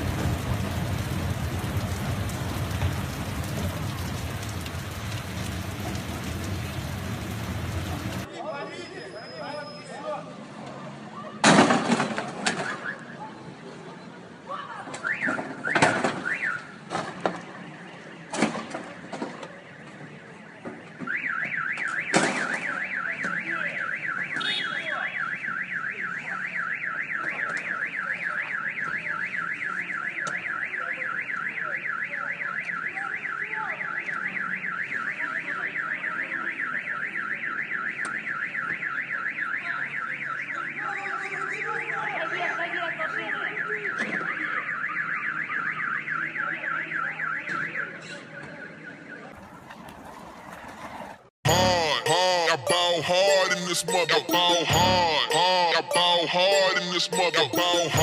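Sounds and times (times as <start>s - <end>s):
warbling electronic alarm: 51.5s - 58.0s.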